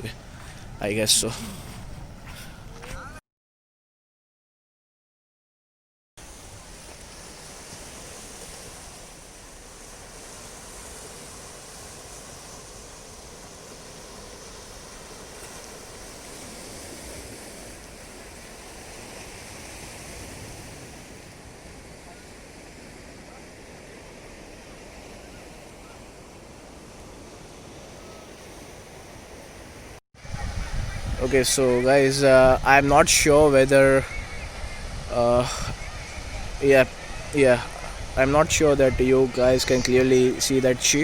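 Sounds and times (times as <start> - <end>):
sea surf washing onto shore: 6.2 - 41.0
wind buffeting microphone: 30.2 - 41.0.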